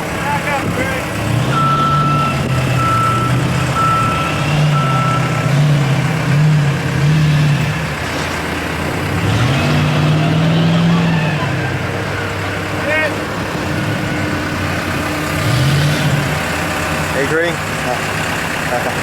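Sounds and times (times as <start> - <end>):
truck engine running: 0.0 - 19.0
reversing alarm beeping: 1.5 - 5.6.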